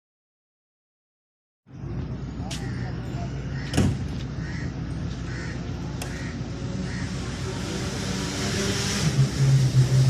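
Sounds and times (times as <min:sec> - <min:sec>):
crow cawing: 0:03.5 - 0:03.8, 0:04.4 - 0:07.2.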